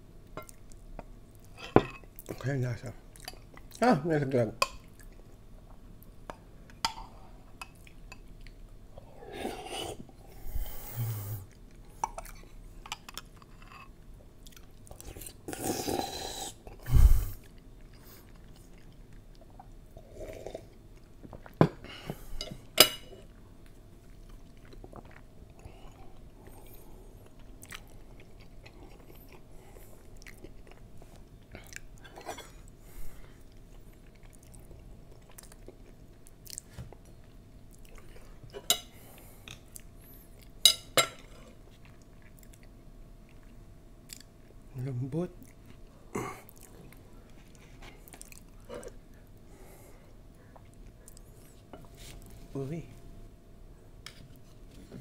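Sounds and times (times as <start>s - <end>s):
person chewing jelly: 11.5s - 40.6s, 41.2s - 44.6s, 45.4s - 51.9s.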